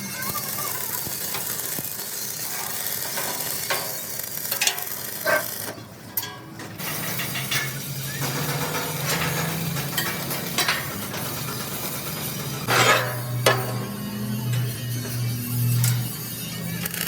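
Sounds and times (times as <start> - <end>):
metallic clicks and knocks: 2.5 - 16.1.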